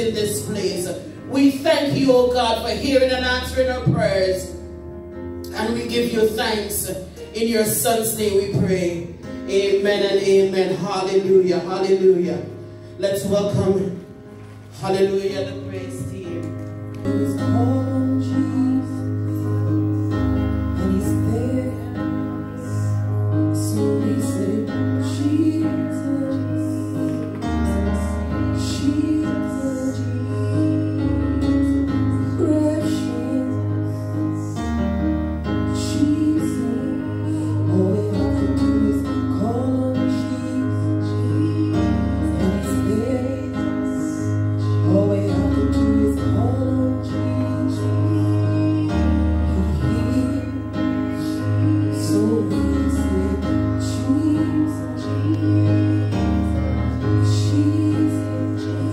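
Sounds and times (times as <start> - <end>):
keyboard chords: 0.0 - 58.9
women singing gospel song: 23.6 - 27.4, 51.2 - 58.9.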